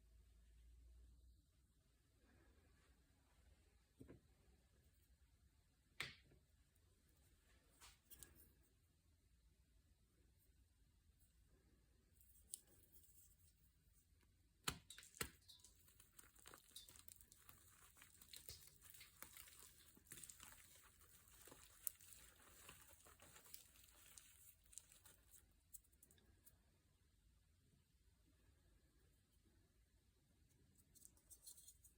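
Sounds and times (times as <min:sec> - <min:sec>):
faint crinkling and rustling: 0:15.0 - 0:26.6.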